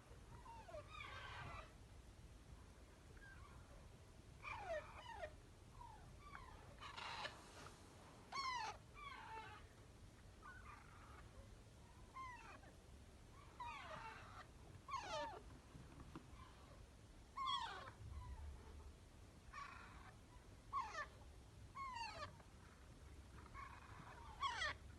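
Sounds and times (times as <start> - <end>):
parrot chicks begging squawks: 0.6 - 1.8, 4.4 - 7.4, 8.3 - 9.8, 13.4 - 15.4, 16.4 - 18.6, 19.4 - 21.2, 21.8 - 24.9.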